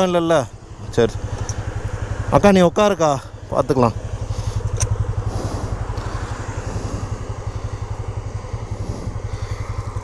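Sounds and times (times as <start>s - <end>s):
motorcycle engine idling: 0.0s - 10.0s
light tick: 1.3s - 1.6s.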